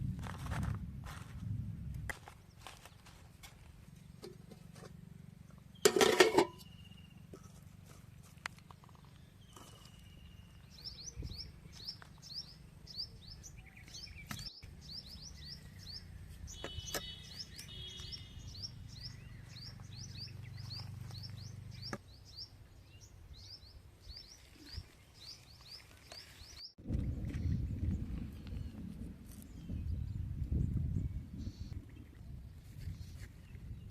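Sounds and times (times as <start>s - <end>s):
steady low rumble: 0.0s - 5.8s, 26.8s - 33.9s
small bird chirping: 5.6s - 7.7s, 8.6s - 27.7s.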